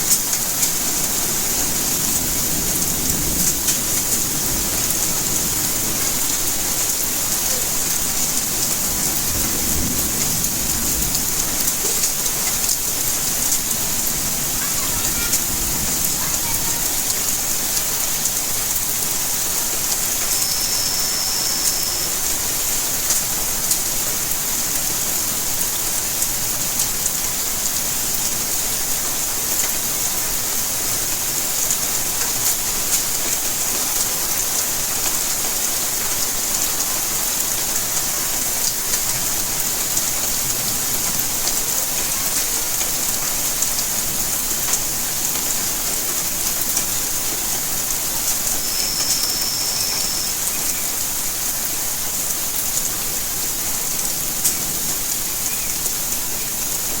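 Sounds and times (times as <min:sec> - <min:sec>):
steady rain hiss: 0:00.0 - 0:57.0
raindrop ticks: 0:00.1 - 0:01.0, 0:10.1 - 0:18.9
thin high tone: 0:20.1 - 0:22.7, 0:48.5 - 0:50.9.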